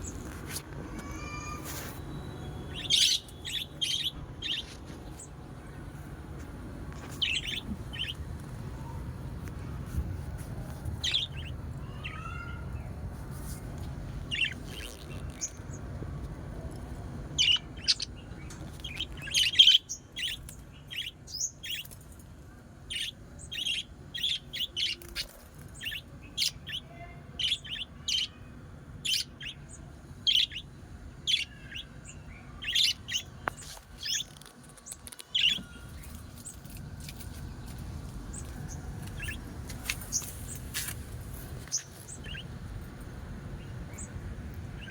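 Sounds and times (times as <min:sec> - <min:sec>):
birds chirping: 0:01.0 - 0:09.9, 0:10.6 - 0:13.1, 0:14.1 - 0:15.9, 0:17.3 - 0:22.0, 0:22.9 - 0:44.9
steady low rumble: 0:02.5 - 0:19.3, 0:35.4 - 0:44.9.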